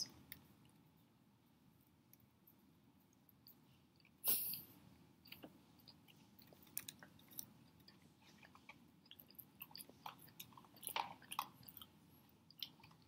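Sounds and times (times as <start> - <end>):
chewing with wet mouth clicks: 5.2 - 13.0.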